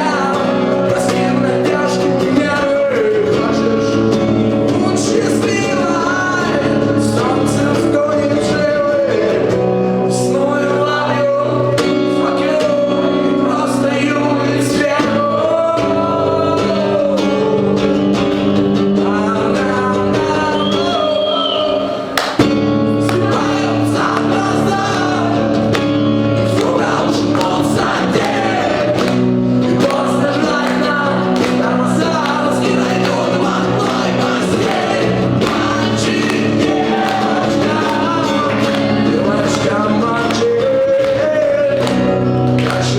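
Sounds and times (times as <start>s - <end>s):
acoustic guitar: 0.0s - 42.9s
person singing: 22.9s - 42.9s.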